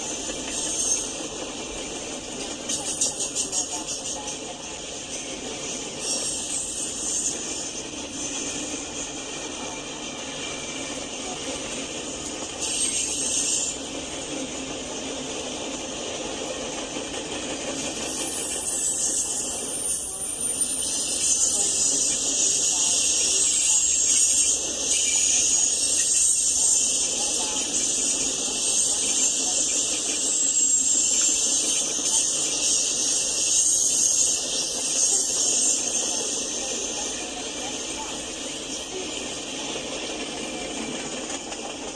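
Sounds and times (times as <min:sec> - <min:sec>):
train wheels on rails: 0:00.0 - 0:41.9
thin wheel squeal: 0:12.6 - 0:13.8.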